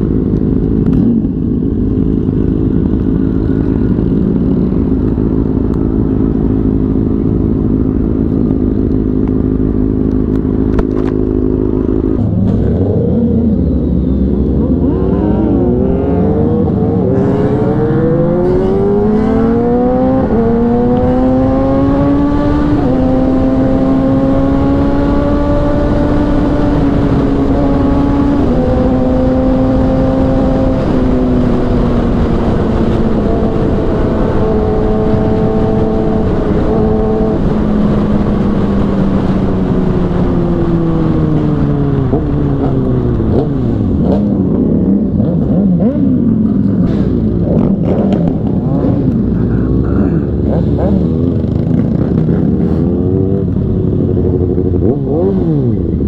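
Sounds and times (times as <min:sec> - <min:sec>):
motorcycle engine accelerating: 0:00.0 - 0:56.0
wind rush: 0:11.8 - 0:45.9.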